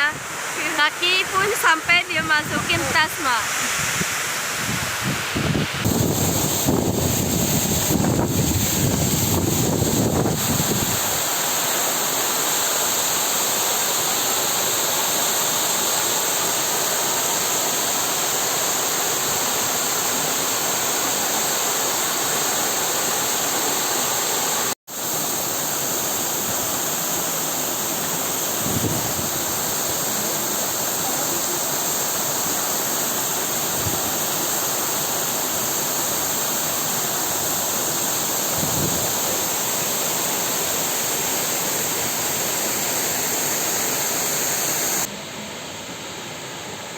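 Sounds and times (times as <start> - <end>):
waterfall and river rushing: 0.0 - 46.9
wind buffeting microphone: 3.9 - 11.0.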